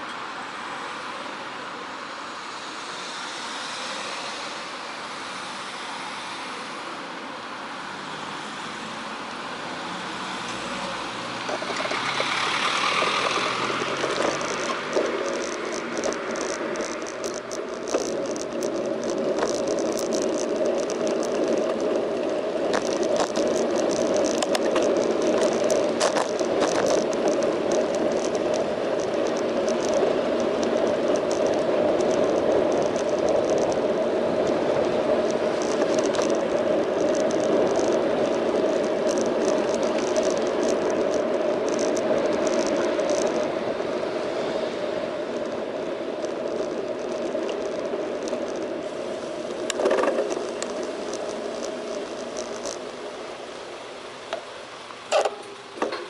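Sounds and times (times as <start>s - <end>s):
bicycle tyre and frame rumble: 0.0s - 56.0s
small rattles and clicks: 11.4s - 53.3s.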